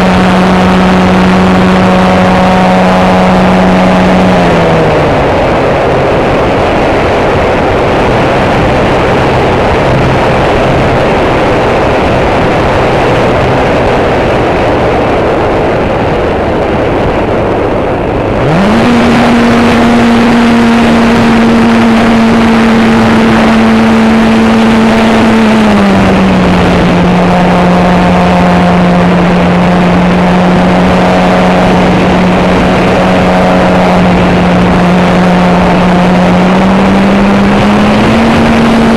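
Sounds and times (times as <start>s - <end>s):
model airplane motor and propeller: 0.0s - 38.9s
wind rushing over microphone: 0.0s - 38.9s.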